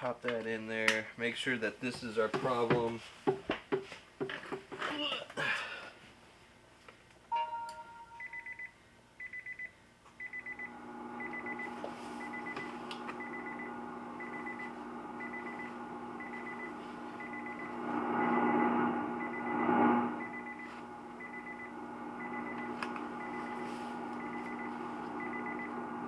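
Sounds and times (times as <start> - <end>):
trilling beeps: 7.3 - 8.7
steady low hum: 10.3 - 26.0.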